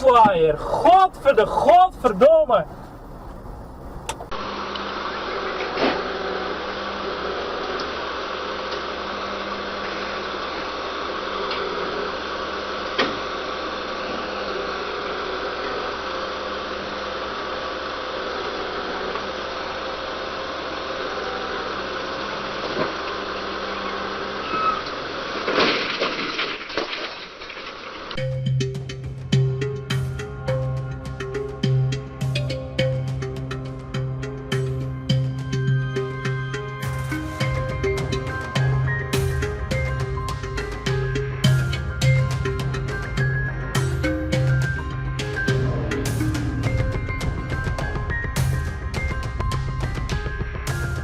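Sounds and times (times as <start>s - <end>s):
engine running steadily: 0.0s - 25.7s, 28.1s - 51.0s.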